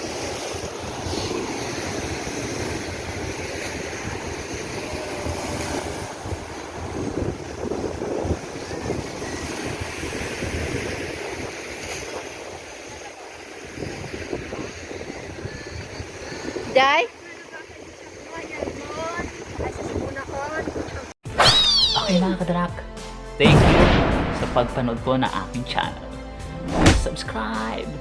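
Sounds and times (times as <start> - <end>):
wind buffeting microphone: 0.0 - 21.1
ocean surf washing ashore: 0.0 - 21.2.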